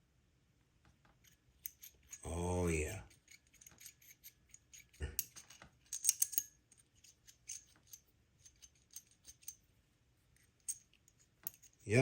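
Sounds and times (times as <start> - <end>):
metallic clicks and rattles: 1.2 - 2.2, 3.1 - 9.6, 10.4 - 11.9.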